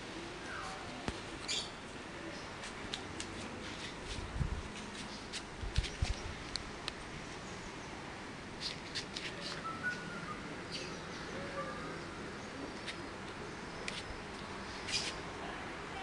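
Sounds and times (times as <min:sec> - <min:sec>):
outdoor background hum: 0:00.0 - 0:16.0
small birds chirping: 0:00.4 - 0:02.7, 0:04.9 - 0:15.3.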